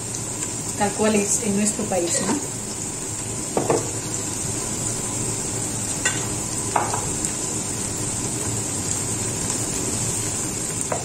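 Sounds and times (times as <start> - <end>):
oil and paste sizzling in a pot: 0.0 - 11.0
utensil knocking against a pot: 3.6 - 3.8.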